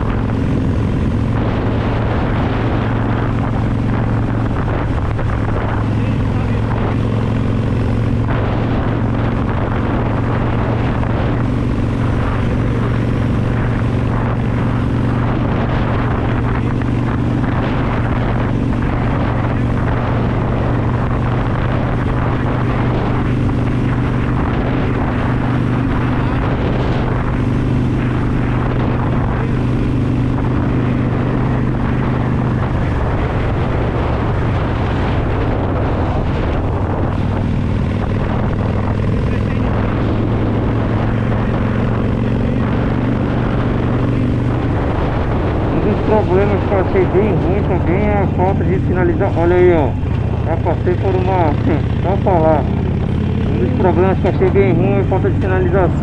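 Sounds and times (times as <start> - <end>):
motorcycle engine cruising: 0.0 - 56.0
wind and road rush: 0.0 - 56.0.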